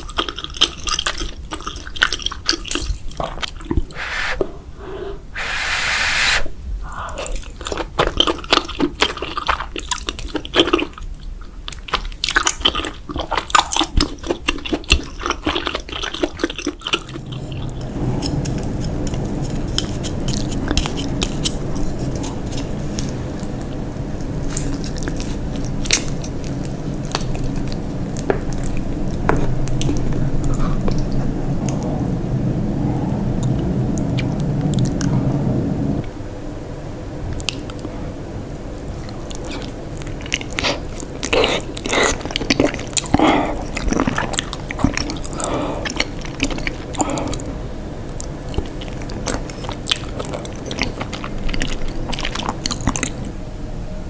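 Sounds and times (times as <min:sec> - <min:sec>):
steady low hum: 0:03.0 - 0:10.2, 0:12.7 - 0:54.0
crunchy chewing: 0:06.9 - 0:32.0, 0:38.8 - 0:53.4.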